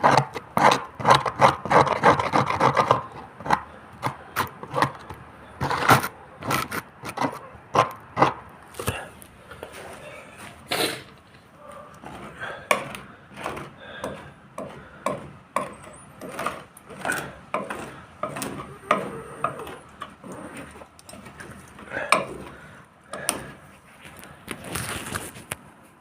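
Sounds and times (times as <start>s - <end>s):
tool knocks and scrapes: 12.0s - 22.6s.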